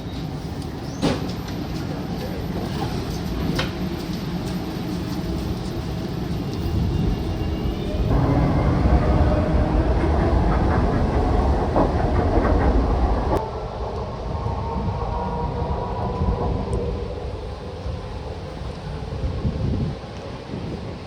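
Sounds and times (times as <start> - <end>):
wheels clattering on tracks: 0.0 - 13.4
train rumbling past: 0.0 - 21.0.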